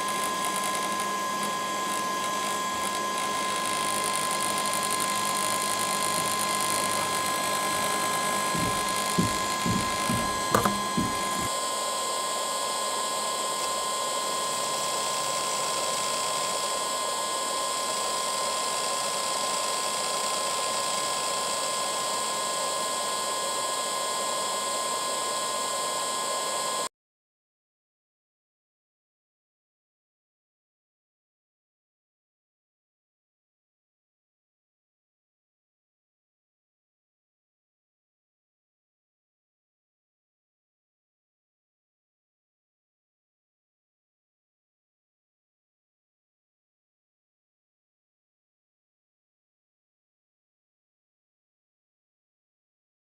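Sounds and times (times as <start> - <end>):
camera gimbal whining: 0.0 - 11.5
gimbal clunking and grinding: 7.7 - 11.5.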